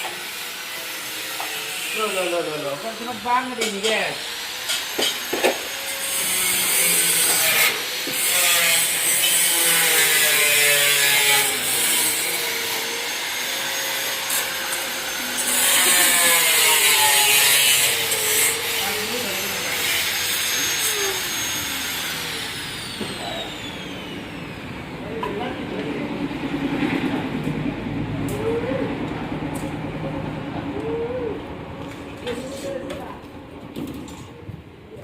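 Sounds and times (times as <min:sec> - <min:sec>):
power tool whining: 0:00.0 - 0:25.4.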